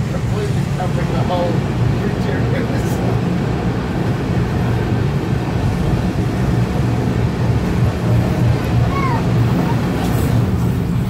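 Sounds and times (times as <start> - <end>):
train rumbling inside carriage: 0.0 - 11.0.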